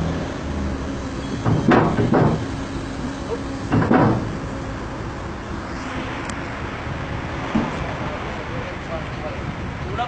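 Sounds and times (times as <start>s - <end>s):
diesel engine running: 0.0s - 10.0s
loud metallic clunks: 1.2s - 2.7s, 3.6s - 4.6s.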